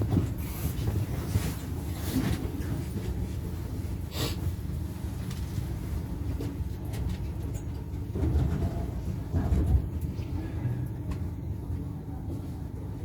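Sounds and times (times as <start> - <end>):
tram low rumble: 0.0 - 13.0.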